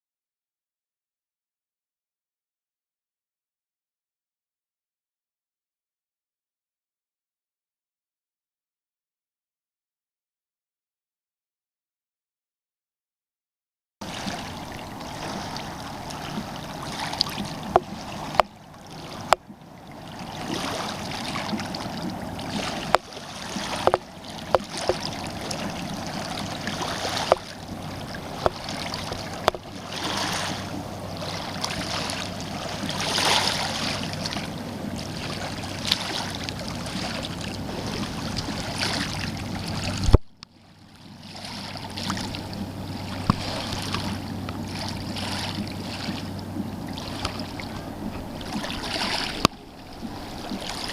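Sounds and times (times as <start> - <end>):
river water rushing: 14.0 - 50.9.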